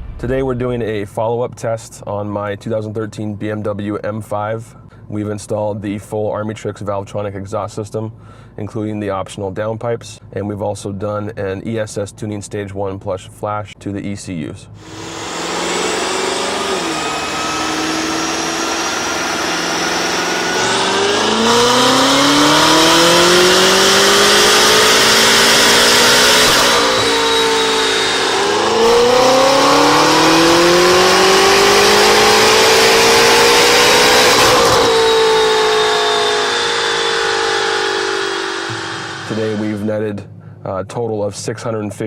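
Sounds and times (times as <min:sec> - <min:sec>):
car engine accelerating hard: 0:14.8 - 0:39.9.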